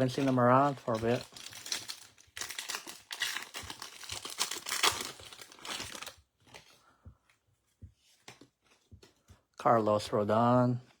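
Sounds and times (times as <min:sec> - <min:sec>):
plastic wrapper crinkling: 0:00.0 - 0:06.8.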